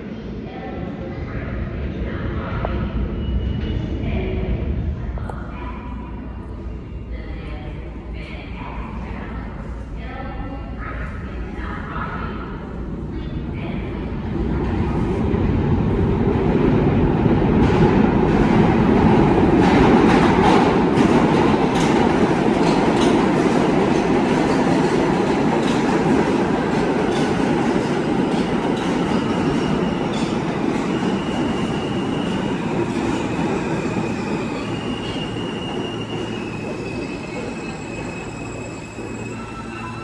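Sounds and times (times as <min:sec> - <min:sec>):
subway train rumble: 0:00.0 - 0:40.0
high wheel squeals: 0:31.1 - 0:40.0.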